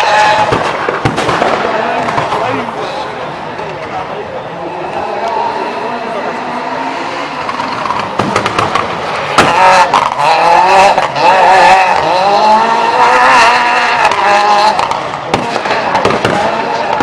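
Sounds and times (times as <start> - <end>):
exhaust pops and bangs: 0.0 - 2.8, 7.5 - 12.7, 13.3 - 17.0
rally car engine revving: 0.0 - 17.0.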